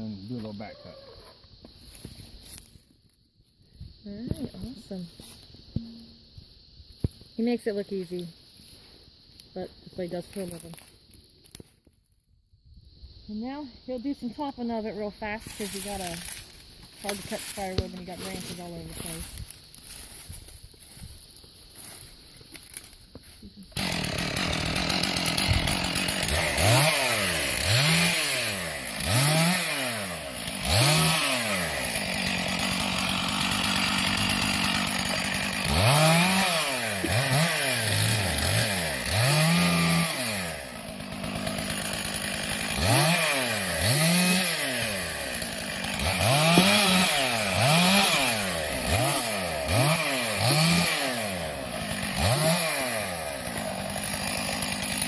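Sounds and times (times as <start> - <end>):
chainsaw revving: 15.4 - 19.3, 23.7 - 55.0.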